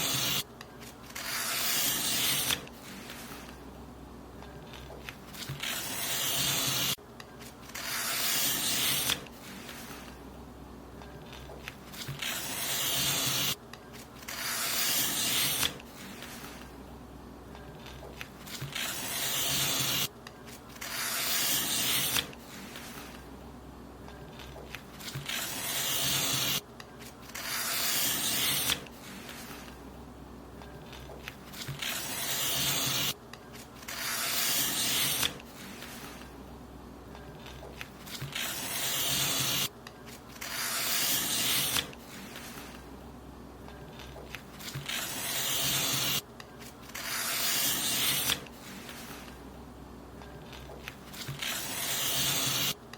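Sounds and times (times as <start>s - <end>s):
paper being cut: 0.0s - 3.6s, 4.8s - 7.0s, 7.6s - 10.2s, 11.3s - 13.6s, 14.2s - 16.6s, 17.8s - 23.2s, 24.7s - 29.7s, 30.9s - 33.2s, 33.8s - 36.3s, 37.4s - 42.8s, 44.0s - 46.2s, 46.8s - 49.4s, 50.5s - 52.8s.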